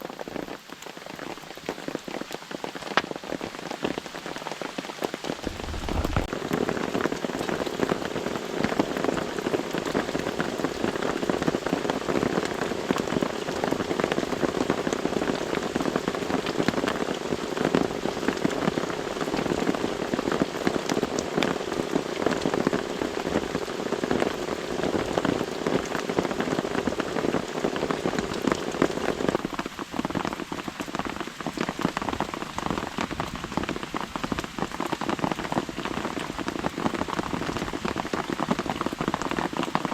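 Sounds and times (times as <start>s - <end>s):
rain pattering on a tarp: 0.0s - 39.9s.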